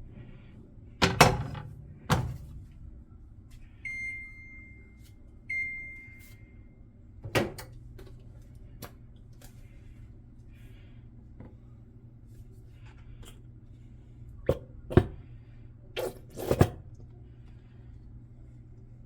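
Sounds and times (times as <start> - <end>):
electronic appliance beeps: 3.8 - 6.8.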